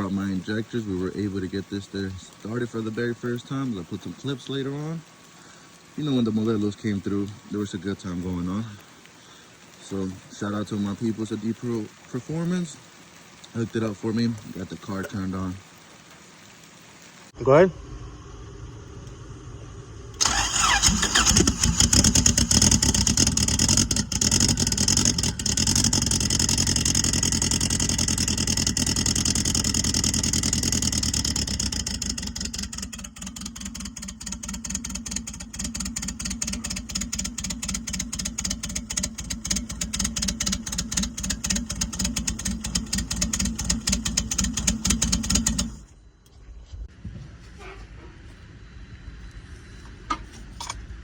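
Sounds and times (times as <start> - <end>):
car engine idling: 17.3 - 45.9.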